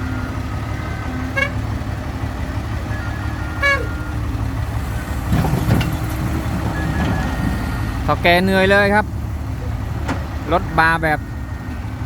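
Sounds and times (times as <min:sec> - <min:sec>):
heavy diesel engines running: 0:00.0 - 0:12.0
short horn toots: 0:01.3 - 0:01.6, 0:03.6 - 0:04.0.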